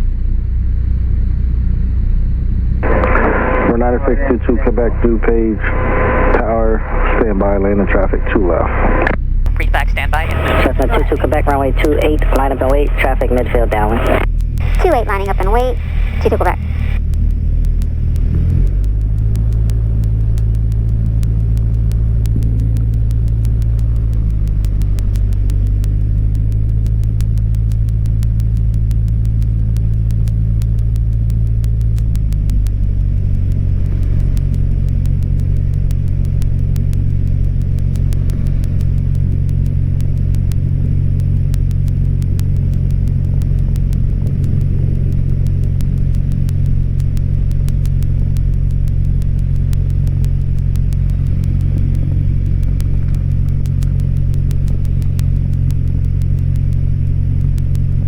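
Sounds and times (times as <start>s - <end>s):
piston engine and propeller: 9.5s - 58.0s.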